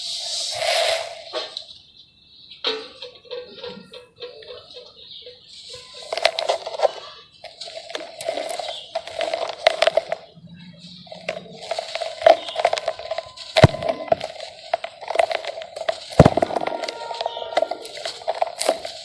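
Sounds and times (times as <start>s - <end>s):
gritty crackling of crumbling chunks: 5.7s - 19.0s
sharp crack: 11.1s - 19.0s.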